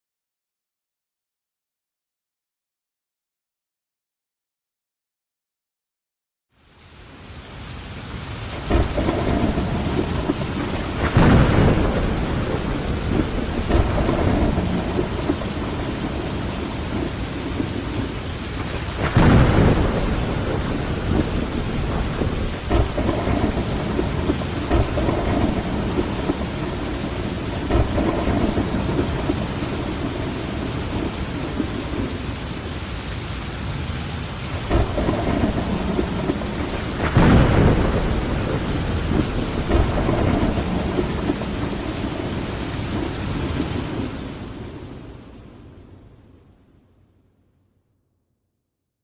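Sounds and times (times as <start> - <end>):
rain on a window: 6.5 - 47.4
low thunder rumble: 8.5 - 33.0, 33.6 - 46.1.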